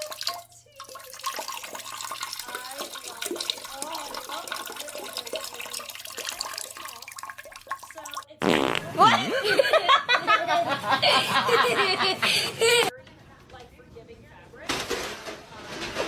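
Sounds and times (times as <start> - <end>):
water running and splashing: 0.0 - 8.4.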